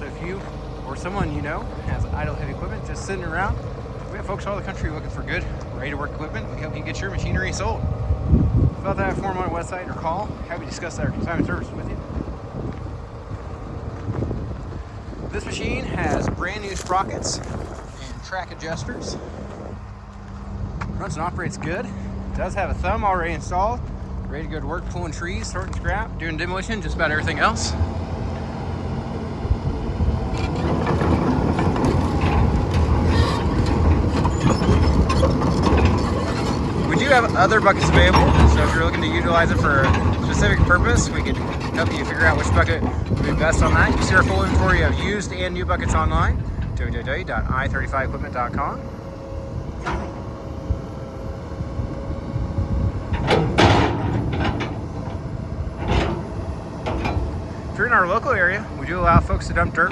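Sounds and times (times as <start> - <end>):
excavator diesel engine droning: 0.0 - 59.9
metallic clanking and scraping: 15.3 - 24.2, 30.2 - 59.9.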